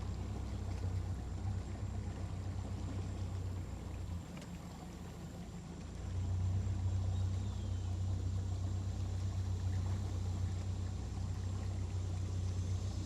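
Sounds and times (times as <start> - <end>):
boat motor droning: 0.0 - 13.0.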